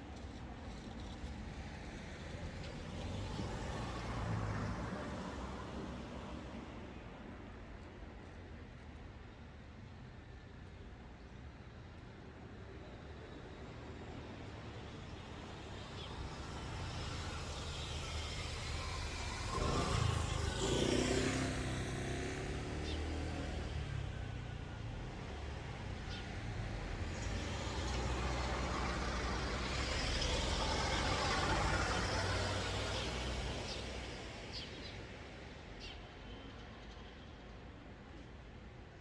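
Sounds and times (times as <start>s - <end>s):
vehicles passing: 15.2s - 36.3s.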